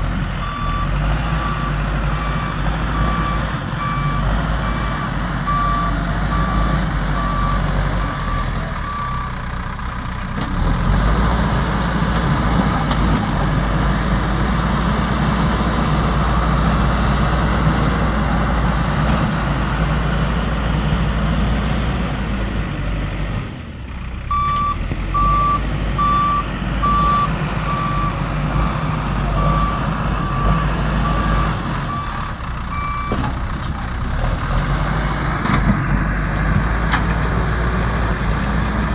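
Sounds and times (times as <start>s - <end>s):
diesel engine running: 0.0s - 38.9s
reversing alarm beeping: 0.4s - 9.4s, 24.3s - 33.2s.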